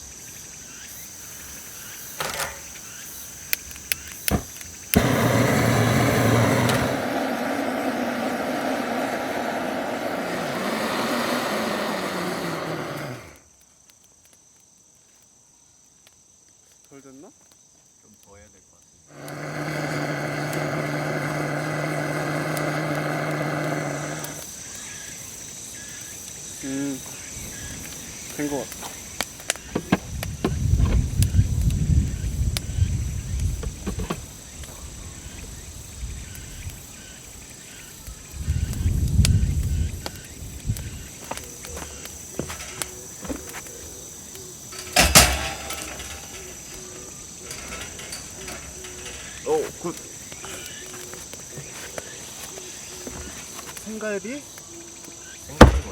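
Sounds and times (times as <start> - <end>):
insects trilling: 0.0 - 55.9
small motor humming: 4.3 - 13.4, 19.2 - 24.4
loud double clatter: 44.8 - 46.7.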